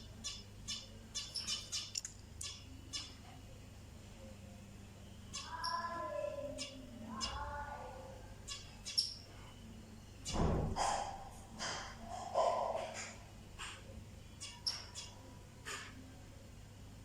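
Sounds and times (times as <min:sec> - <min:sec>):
birds chirping: 0:00.0 - 0:16.0
low bird call or knock: 0:10.3 - 0:13.8.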